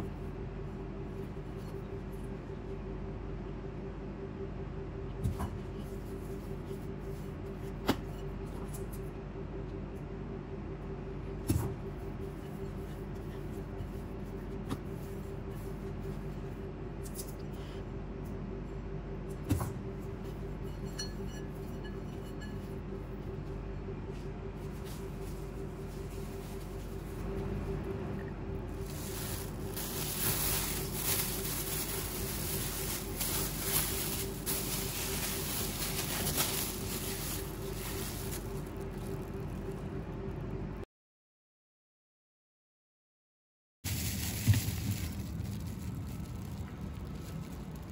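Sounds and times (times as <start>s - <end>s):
steady low hum: 0.0s - 40.9s
plastic bag crinkling: 28.8s - 39.8s, 43.9s - 47.9s.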